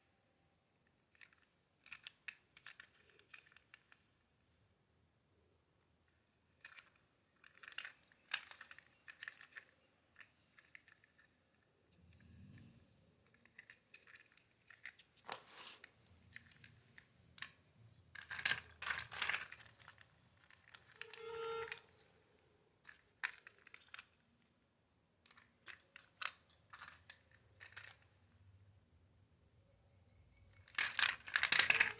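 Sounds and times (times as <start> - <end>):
toy trucks clattering: 1.1 - 3.9, 6.6 - 11.4, 13.3 - 15.3, 16.2 - 22.0, 22.8 - 24.2, 25.3 - 28.1, 30.5 - 31.9.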